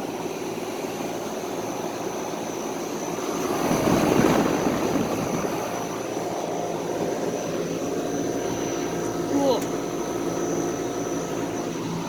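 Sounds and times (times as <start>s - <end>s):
compressor humming: 0.0s - 12.0s
fan air rushing: 0.0s - 12.0s.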